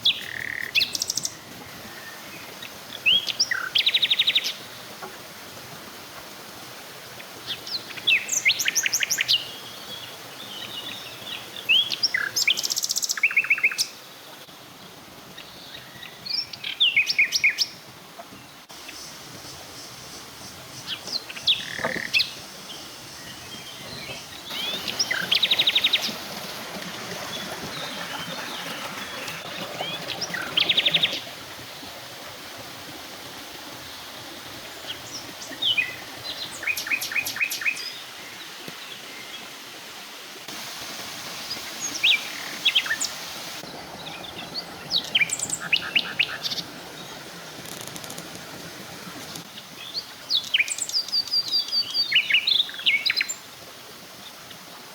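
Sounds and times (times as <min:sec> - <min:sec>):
forest birds chirping and trilling: 0:00.0 - 0:04.8, 0:07.4 - 0:14.3, 0:18.4 - 0:26.2, 0:34.8 - 0:39.5, 0:41.5 - 0:48.0, 0:49.3 - 0:53.4
steady background hiss: 0:00.0 - 0:29.4.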